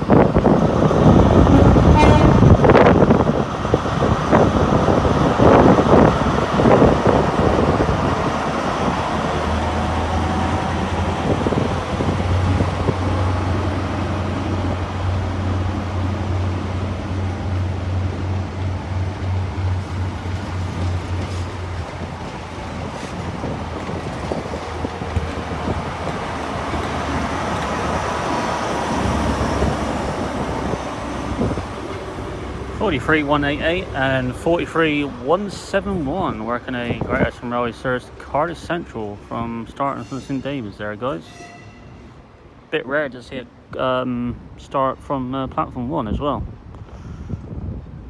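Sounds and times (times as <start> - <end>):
diesel engines humming: 0.0 - 45.1
station noise: 0.3 - 21.3.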